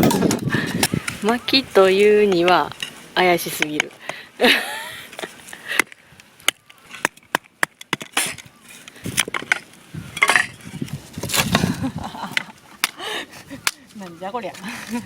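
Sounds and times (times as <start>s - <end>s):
wood scraping: 6.4s - 15.0s.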